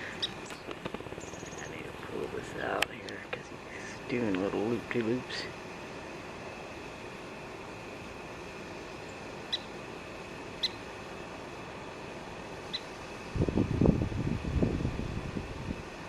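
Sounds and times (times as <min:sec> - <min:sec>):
low rumbling on microphone: 0:13.3 - 0:15.9.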